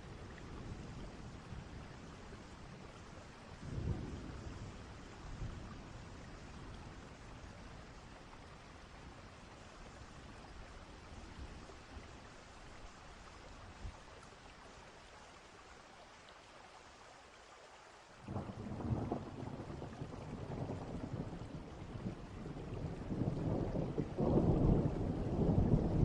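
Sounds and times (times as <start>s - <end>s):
steady rain: 0.0s - 26.0s
rolling thunder: 18.3s - 26.0s.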